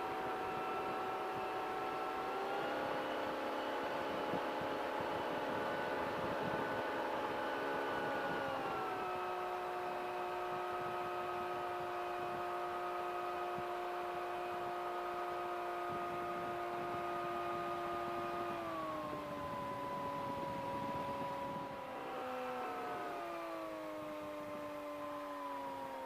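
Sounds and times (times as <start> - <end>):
aircraft engine and propeller droning: 0.0 - 26.0.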